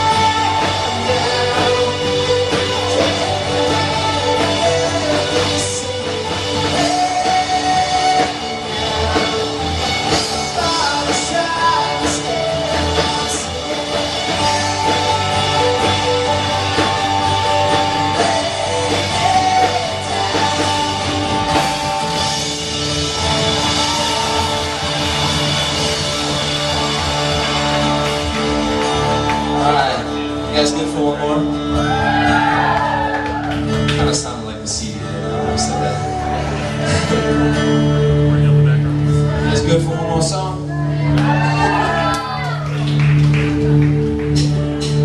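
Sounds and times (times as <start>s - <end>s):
person singing: 0.0s - 25.0s
guitar: 0.0s - 45.0s
live rock band playing: 0.0s - 45.0s.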